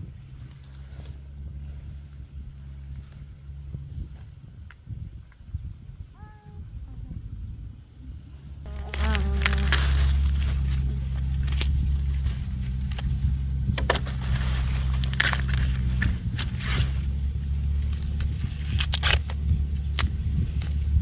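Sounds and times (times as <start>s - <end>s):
motor humming: 8.7s - 21.0s.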